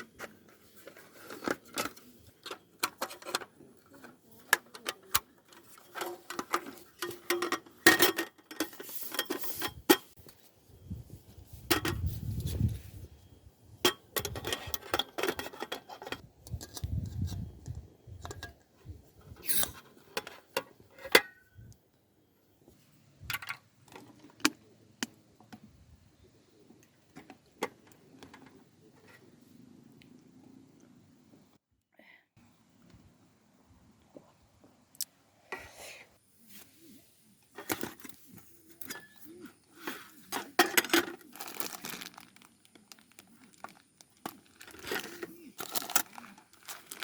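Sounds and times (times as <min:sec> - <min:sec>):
camp cooking gear clinking: 0:00.0 - 0:10.5, 0:11.6 - 0:12.6, 0:13.7 - 0:21.7, 0:23.3 - 0:25.6, 0:37.5 - 0:47.0.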